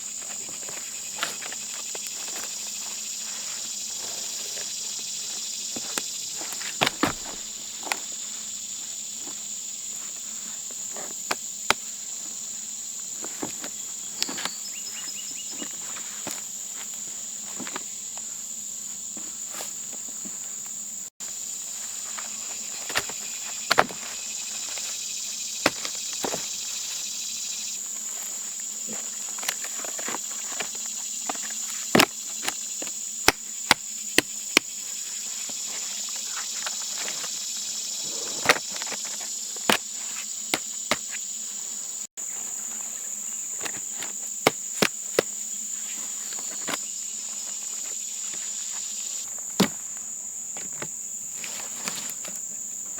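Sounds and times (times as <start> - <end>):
insects chirring: 0.0 - 52.9
sharp knocks and cracks: 5.8 - 8.0, 22.8 - 24.8, 25.6 - 26.5, 31.3 - 34.7, 49.5 - 49.9.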